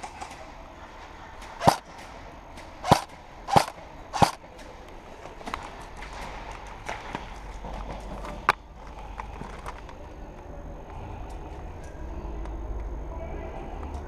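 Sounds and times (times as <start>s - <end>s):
airsoft gun shots: 1.6s - 2.0s, 2.8s - 4.5s.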